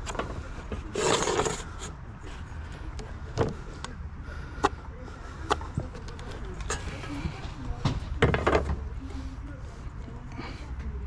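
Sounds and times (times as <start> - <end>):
roofing material scraping: 0.0 - 2.7.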